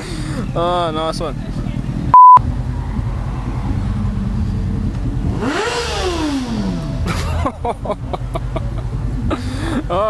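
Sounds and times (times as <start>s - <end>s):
motorcycle engine running: 1.2s - 10.0s
censor bleep: 2.2s - 2.4s
engine revving: 2.4s - 7.6s.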